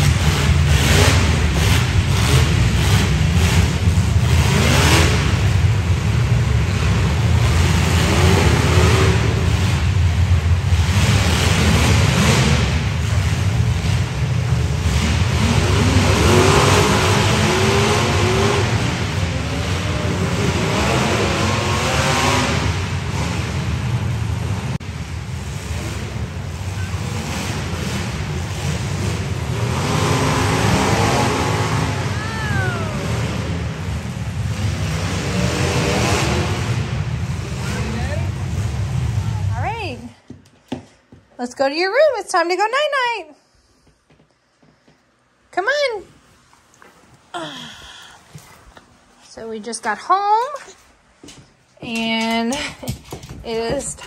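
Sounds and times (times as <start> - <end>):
car engines revving: 0.0 - 40.2.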